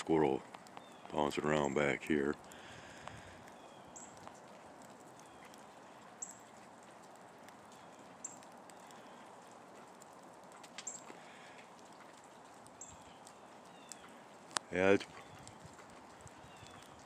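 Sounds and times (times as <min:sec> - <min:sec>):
faint outdoor ambience: 0:00.0 - 0:17.0
sharp clicks: 0:00.5 - 0:01.2
small bird chip call: 0:12.8 - 0:14.2, 0:16.4 - 0:17.0.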